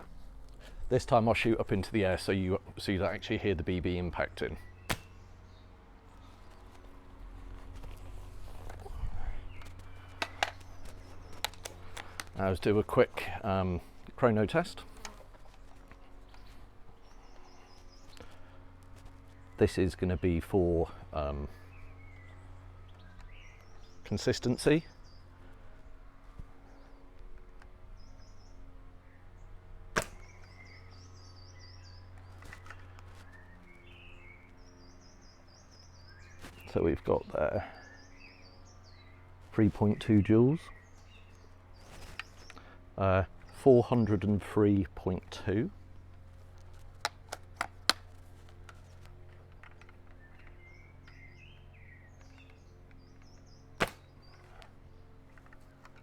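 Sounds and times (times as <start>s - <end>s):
birds chirping: 0.0s - 56.0s
steady low hum: 0.0s - 56.0s
airsoft rifle shot: 4.9s - 5.1s, 29.9s - 30.4s, 53.8s - 54.1s.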